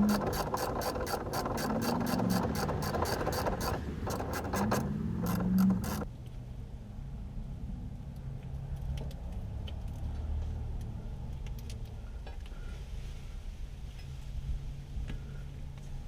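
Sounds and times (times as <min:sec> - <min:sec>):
light clicks and rattles: 0:00.0 - 0:06.1
vehicle engine rumbling: 0:00.0 - 0:06.1.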